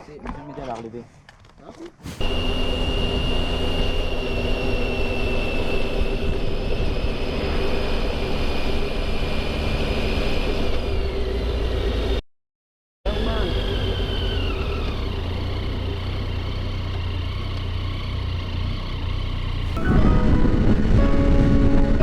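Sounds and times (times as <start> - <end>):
wind rumble: 2.0 - 11.1, 19.7 - 22.0
motorcycle engine whine: 2.0 - 12.2, 13.1 - 22.0.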